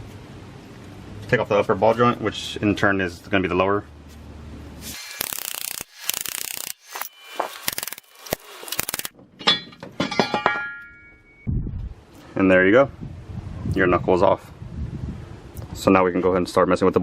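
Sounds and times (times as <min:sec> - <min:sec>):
metal clanks with ringing: 0:09.4 - 0:11.5
metal-on-metal strikes: 0:09.4 - 0:11.5.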